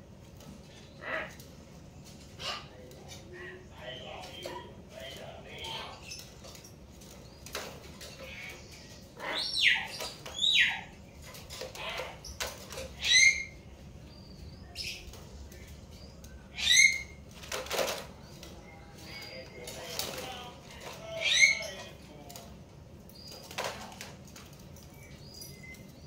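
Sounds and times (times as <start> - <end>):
mynas calling: 0.6 - 6.6, 7.3 - 22.4
wings flapping: 17.2 - 18.2.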